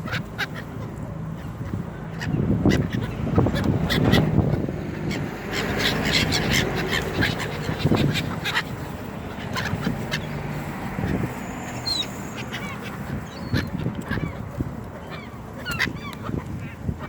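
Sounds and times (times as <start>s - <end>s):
gulls and waterfowl squawking: 0.0s - 17.0s.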